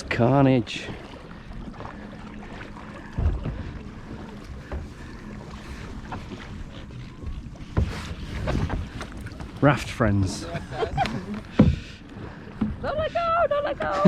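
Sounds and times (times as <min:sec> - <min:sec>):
water sloshing: 0:00.0 - 0:14.0
dull bump: 0:11.5 - 0:11.9.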